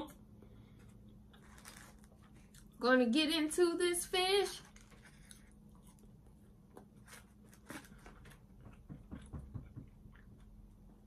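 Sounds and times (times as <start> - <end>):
quiet chewing: 0.8 - 2.8, 4.7 - 8.8.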